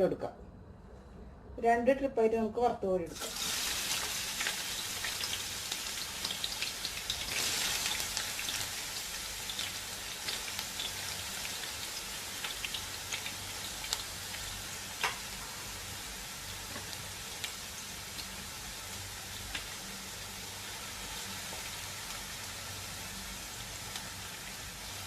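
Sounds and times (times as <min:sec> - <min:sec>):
oil crackling and popping: 0:03.2 - 0:15.4
onions sizzling in oil: 0:03.2 - 0:25.0.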